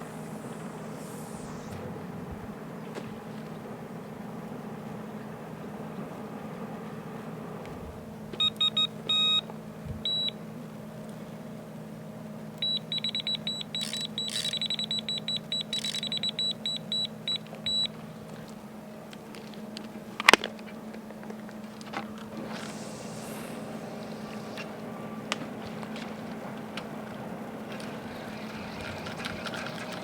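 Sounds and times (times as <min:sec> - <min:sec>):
low hum: 0:00.0 - 0:08.3, 0:21.7 - 0:29.5
bite alarm beeping: 0:08.4 - 0:09.4, 0:10.1 - 0:10.4, 0:12.6 - 0:18.0.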